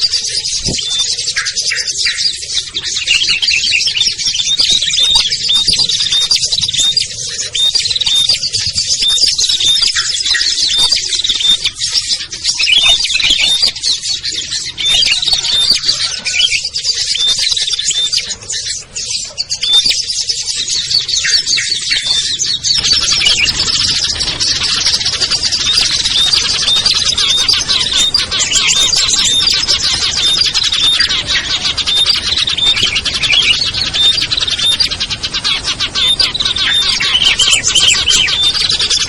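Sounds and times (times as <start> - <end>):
songbirds chirping: 0.0 - 39.0.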